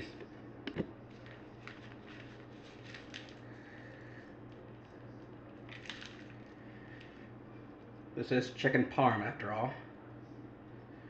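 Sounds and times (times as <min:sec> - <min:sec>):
low steady hum: 0:00.0 - 0:11.0
cheese rustling into a bowl: 0:01.0 - 0:07.3.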